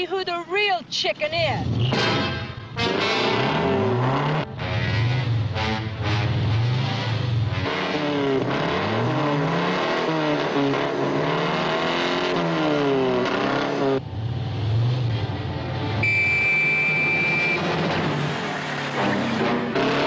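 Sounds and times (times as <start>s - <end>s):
sports car engines revving: 2.7s - 20.0s
high steady squeal: 16.0s - 17.6s.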